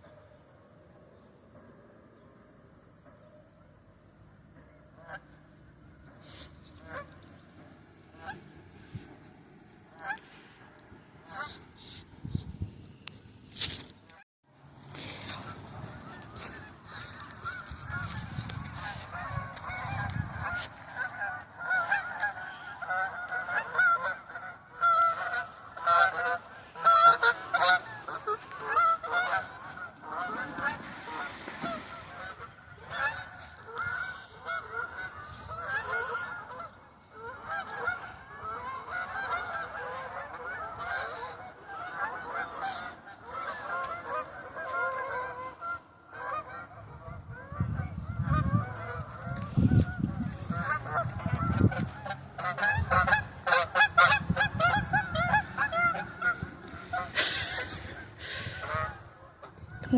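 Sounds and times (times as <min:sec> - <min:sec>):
geese honking: 0:04.6 - 0:08.6, 0:09.8 - 0:12.0, 0:15.1 - 0:59.9.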